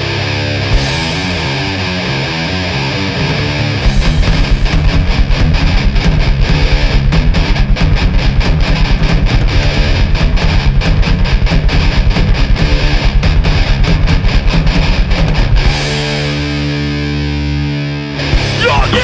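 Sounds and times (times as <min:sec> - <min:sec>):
distorted electric guitar riff: 0:00.0 - 0:19.0
drums and bass fast beat: 0:03.2 - 0:16.6, 0:18.3 - 0:19.0.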